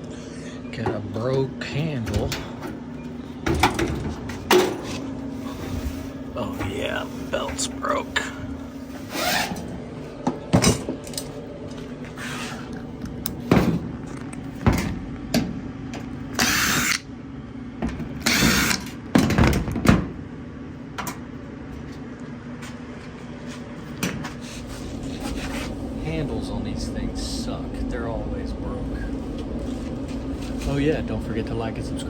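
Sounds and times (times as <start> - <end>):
steady low hum: 0.0 - 32.0
power tool bursts: 16.4 - 17.0, 18.2 - 18.9.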